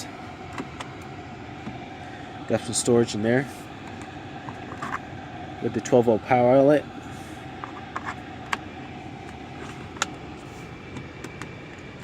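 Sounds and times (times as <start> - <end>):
ventilation fan humming: 0.0 - 12.0.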